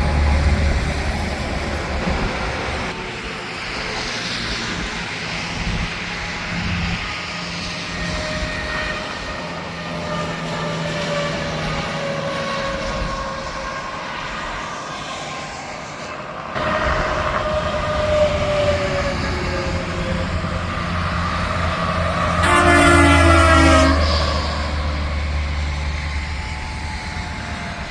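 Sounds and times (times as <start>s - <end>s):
trucks passing on highway: 0.0s - 27.9s
truck horn: 19.6s - 25.5s.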